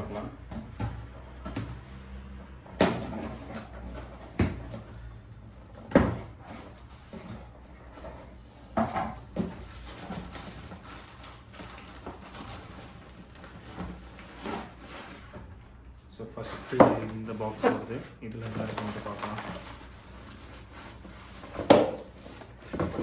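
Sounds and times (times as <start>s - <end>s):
boxes knocking and thudding: 0.0s - 15.5s, 16.5s - 17.8s, 18.4s - 23.0s
packaging rustling: 6.2s - 15.5s, 16.4s - 23.0s.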